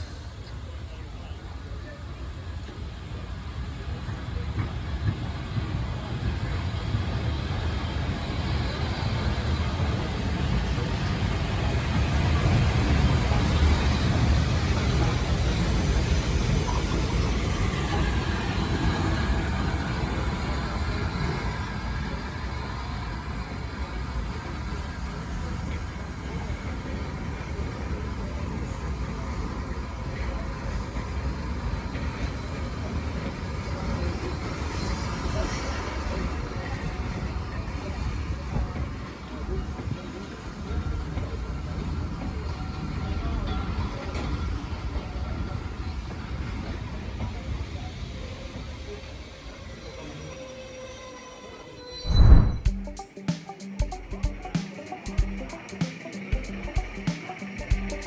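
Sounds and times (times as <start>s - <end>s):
train rumbling: 0.0s - 43.0s.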